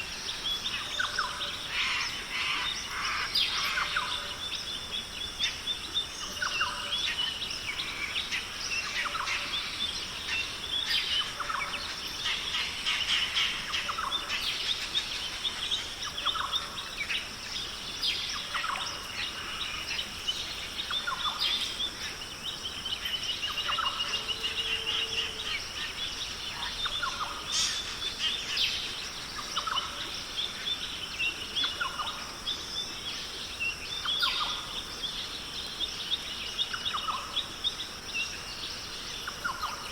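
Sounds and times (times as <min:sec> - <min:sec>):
birds chirping and whistling: 0:12.5 - 0:33.0.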